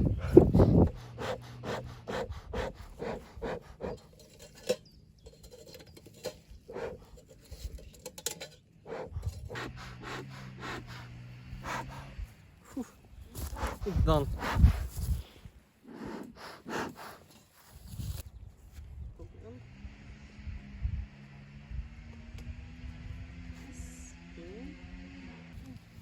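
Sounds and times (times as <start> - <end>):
clicks and scraping of handling: 3.9 - 9.5.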